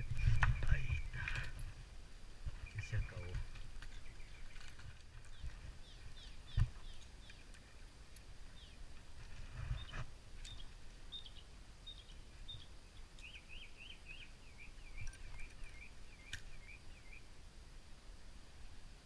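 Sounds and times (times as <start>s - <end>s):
small bird chirping: 0.0s - 1.8s, 2.5s - 17.3s
wind rumble: 0.0s - 12.8s.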